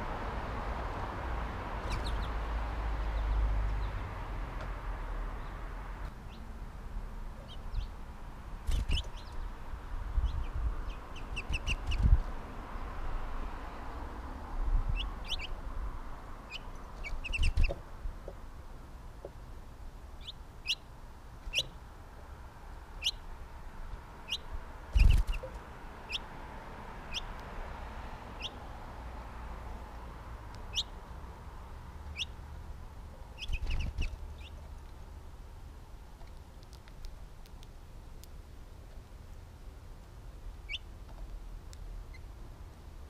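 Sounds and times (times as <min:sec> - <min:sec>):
small bird chirping: 0:01.8 - 0:02.4, 0:06.2 - 0:06.5, 0:07.4 - 0:08.0, 0:08.6 - 0:09.6, 0:10.2 - 0:12.2, 0:14.9 - 0:15.6, 0:16.5 - 0:17.8, 0:20.2 - 0:21.8, 0:23.0 - 0:23.3, 0:24.3 - 0:26.3, 0:27.1 - 0:27.4, 0:28.4 - 0:28.6, 0:30.5 - 0:31.0, 0:32.0 - 0:32.4, 0:33.2 - 0:34.9, 0:40.6 - 0:40.9, 0:42.0 - 0:42.3
bird wings fluttering: 0:08.6 - 0:09.1, 0:25.0 - 0:25.5.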